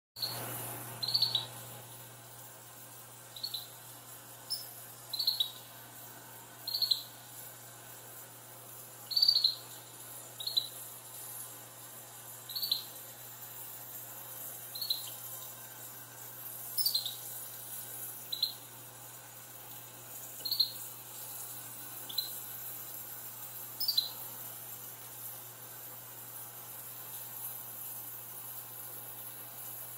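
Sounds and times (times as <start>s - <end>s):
pet bird chirping: 0.2s - 1.6s, 3.3s - 5.7s, 6.6s - 7.2s, 9.0s - 10.8s, 12.5s - 13.0s, 14.7s - 15.3s, 16.6s - 17.4s, 18.2s - 18.6s, 20.4s - 20.8s, 22.0s - 22.5s, 23.8s - 24.2s
steady high hiss: 0.2s - 29.9s.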